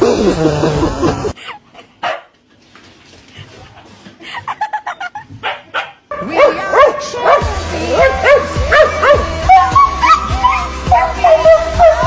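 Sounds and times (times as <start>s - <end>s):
dog barking and yelping: 5.4s - 12.0s.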